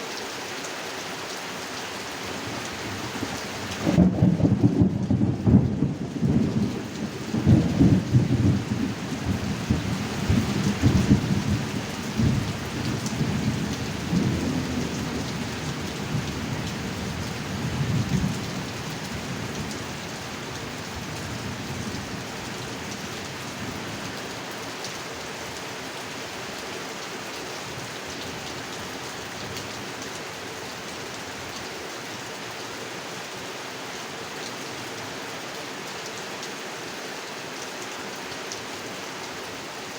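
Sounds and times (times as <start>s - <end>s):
heavy rain: 0.0s - 39.9s
rolling thunder: 3.8s - 12.5s.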